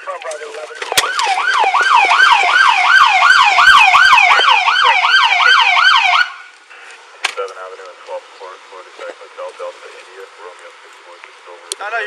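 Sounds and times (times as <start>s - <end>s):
siren yelping: 0.6s - 6.5s.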